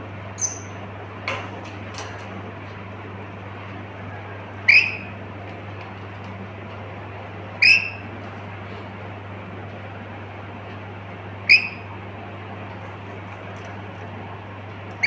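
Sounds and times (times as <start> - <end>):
parrot shrill calls: 0.4 - 0.7, 7.6 - 8.0, 11.5 - 11.8.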